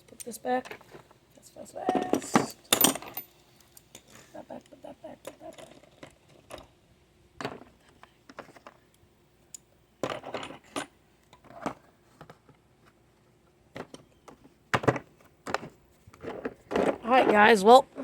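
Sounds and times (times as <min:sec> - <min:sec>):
metal tools clinking and clattering: 0:01.9 - 0:04.2, 0:10.0 - 0:11.7.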